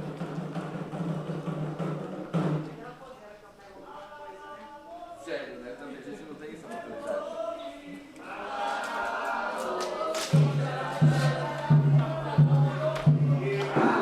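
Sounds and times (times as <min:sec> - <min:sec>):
voices chanting a ritual song: 0:06.6 - 0:14.0
deep drum beat: 0:10.4 - 0:14.0.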